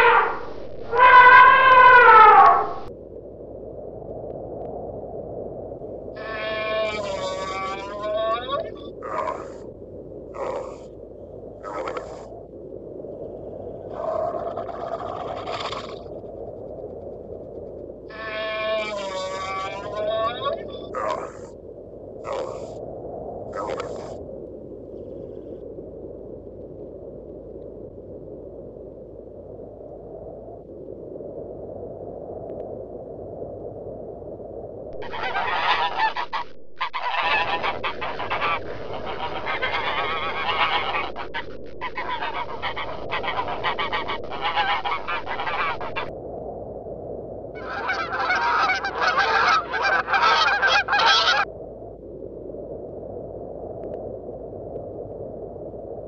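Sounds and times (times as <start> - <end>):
swans honking: 35.0 - 41.1, 47.6 - 51.5.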